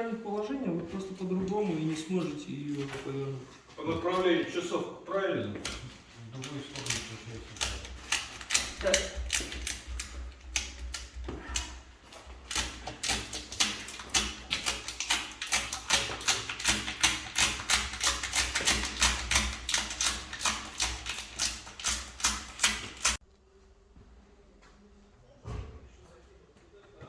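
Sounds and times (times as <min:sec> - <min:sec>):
wood fire crackling: 0:05.5 - 0:23.2.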